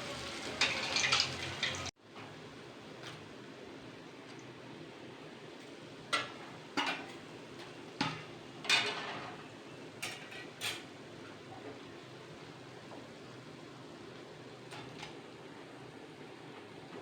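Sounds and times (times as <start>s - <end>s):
metal utensil clinking on cookware: 0.0s - 1.9s.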